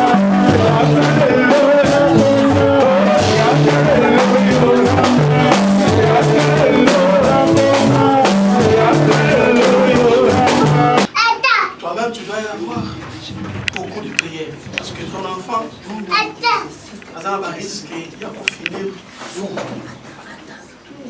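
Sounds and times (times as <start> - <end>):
bass line: 0.0 - 11.1
drum kit beat: 0.0 - 11.2.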